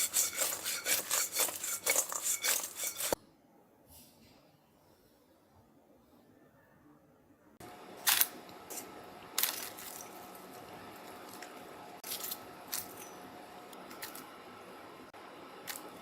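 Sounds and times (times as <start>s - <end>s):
utensils clinking on cookware: 0.0s - 3.2s, 11.4s - 13.3s.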